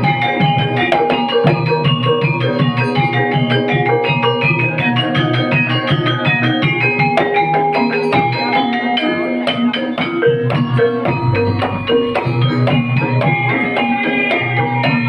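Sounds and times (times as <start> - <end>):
drums: 0.0 - 15.0
gamelan keyed percussion: 0.0 - 15.0.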